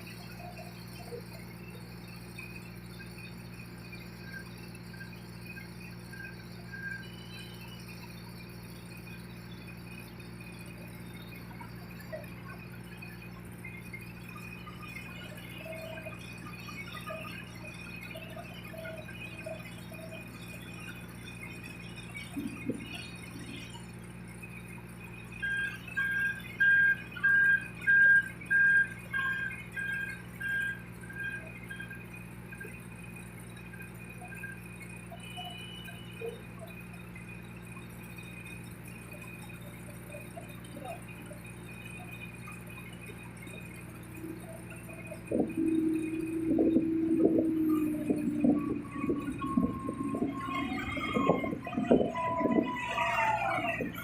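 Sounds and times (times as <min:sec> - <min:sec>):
low engine hum: 0:42.8 - 0:54.0.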